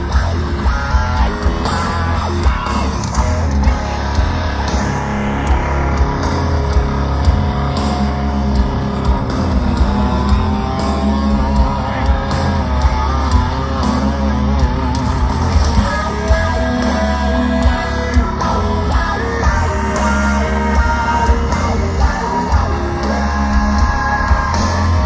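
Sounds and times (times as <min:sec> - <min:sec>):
live heavy rock band: 0:00.0 - 0:25.0
person singing: 0:15.6 - 0:25.0.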